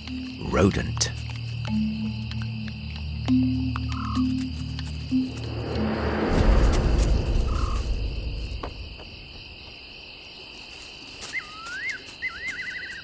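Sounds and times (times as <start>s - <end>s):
crickets trilling: 0.0s - 13.0s
deep low rumble: 1.9s - 9.9s.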